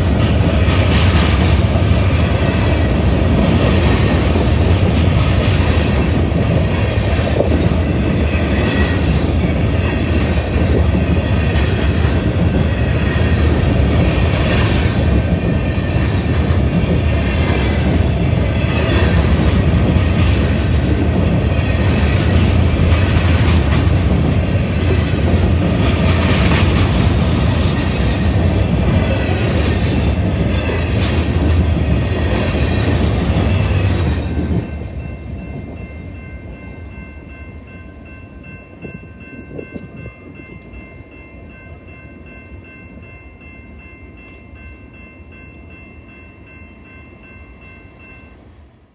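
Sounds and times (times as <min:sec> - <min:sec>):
wheels clacking over rail joints: 0:00.0 - 0:34.6
freight train rumbling past: 0:00.0 - 0:48.9.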